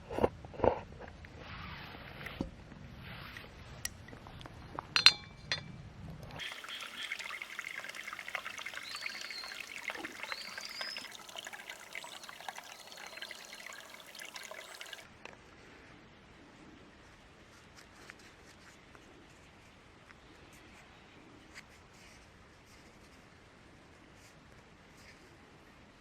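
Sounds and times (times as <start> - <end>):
sharp glass clink: 5.0 - 5.7
liquid pouring into vessel: 6.4 - 15.1.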